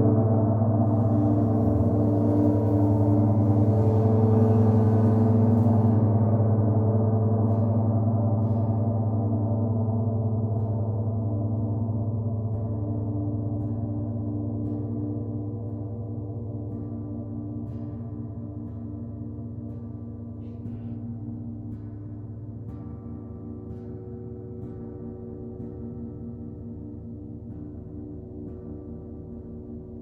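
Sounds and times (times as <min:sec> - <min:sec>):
gong ringing: 0:00.9 - 0:05.9.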